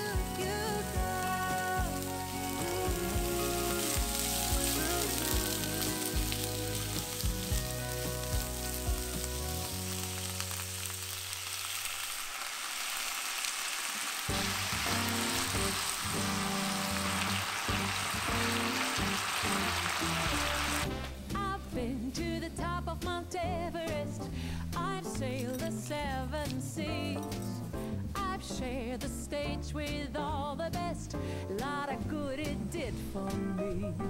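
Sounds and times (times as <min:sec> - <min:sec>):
soft background music: 0:00.0 - 0:11.1, 0:14.3 - 0:34.0
food sizzling in a frying pan: 0:00.0 - 0:21.4.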